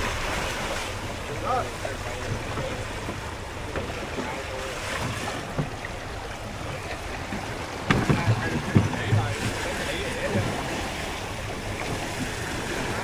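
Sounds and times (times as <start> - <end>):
wind buffeting microphone: 0.0 - 3.6
sea waves washing: 0.0 - 13.0.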